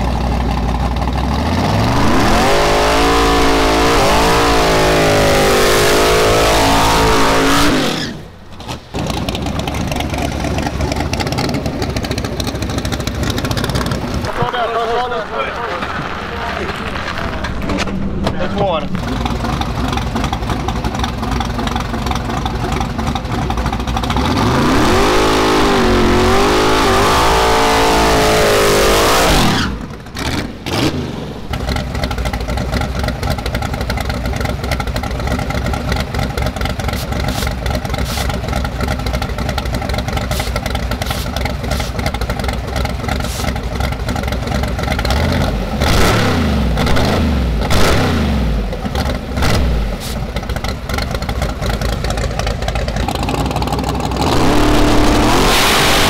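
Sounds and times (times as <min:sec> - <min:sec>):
car engine idling: 0:00.0 - 0:56.0
car engine revving high: 0:01.3 - 0:08.3, 0:24.1 - 0:31.8, 0:45.0 - 0:48.8, 0:54.0 - 0:56.0
hiss: 0:37.0 - 0:38.4, 0:40.3 - 0:42.0, 0:43.2 - 0:43.5.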